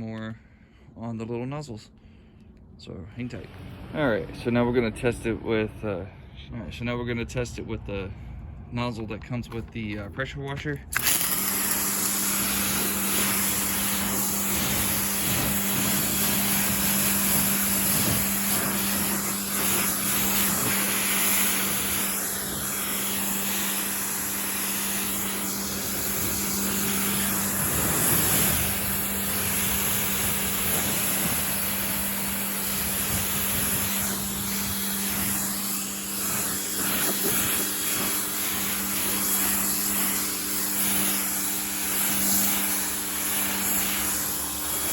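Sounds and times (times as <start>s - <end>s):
pressure washer motor hum: 10.8s - 44.9s
water spray hissing: 11.0s - 44.9s.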